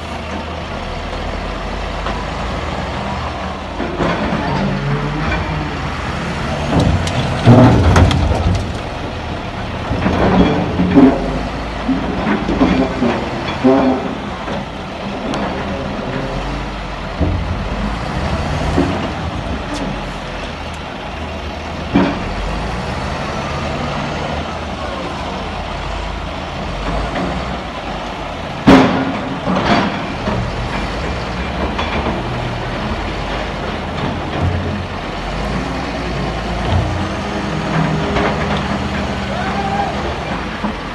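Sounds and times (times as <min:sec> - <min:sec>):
heavy diesel machinery running: 0:00.0 - 0:40.9
metal knocks and clanks: 0:03.7 - 0:20.6, 0:21.8 - 0:22.6, 0:28.6 - 0:39.2.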